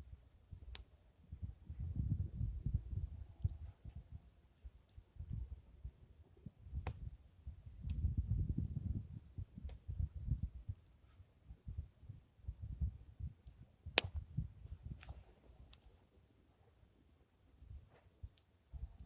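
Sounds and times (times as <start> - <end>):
wind buffeting microphone: 0.0 - 4.3, 5.1 - 15.7, 18.7 - 19.0
wood fire crackling: 0.2 - 1.8, 2.8 - 5.9, 6.6 - 16.1.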